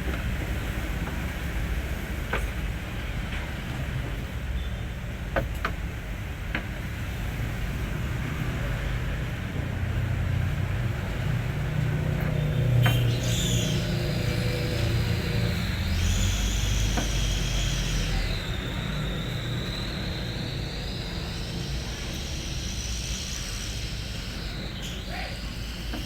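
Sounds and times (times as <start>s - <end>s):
diesel truck engine rumbling: 0.0s - 26.0s
high whine: 6.3s - 26.0s.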